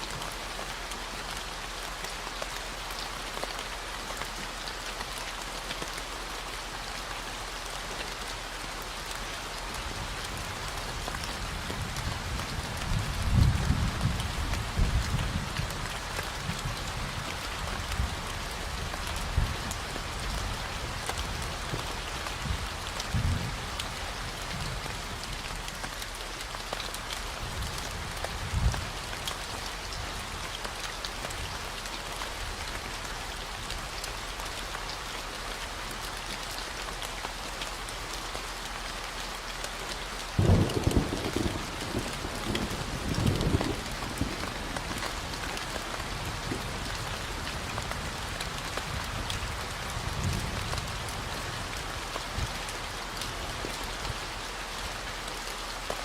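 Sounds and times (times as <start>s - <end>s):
steady rain falling: 0.0s - 56.0s
thunder rumbles: 40.4s - 51.3s.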